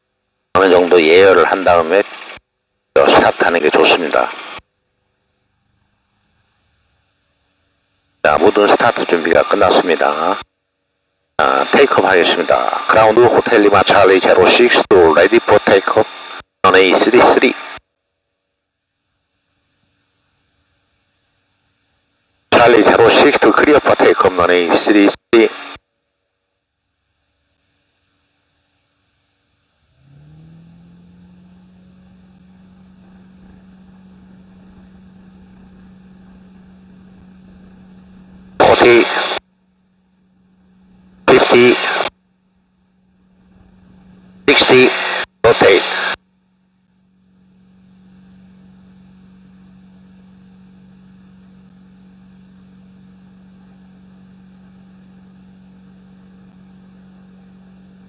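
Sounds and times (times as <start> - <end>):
aircraft engine hum through headset: 0.6 - 2.4, 3.0 - 4.6, 8.2 - 10.4, 11.4 - 17.8, 22.5 - 25.8, 30.1 - 39.4, 40.5 - 42.1, 43.2 - 46.2
light aircraft engine at full power: 8.3 - 10.4, 30.1 - 39.4.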